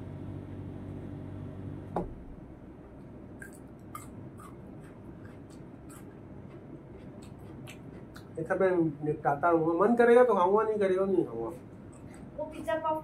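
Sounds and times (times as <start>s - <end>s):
chewing mouth clicks: 3.4s - 8.4s, 11.9s - 12.3s.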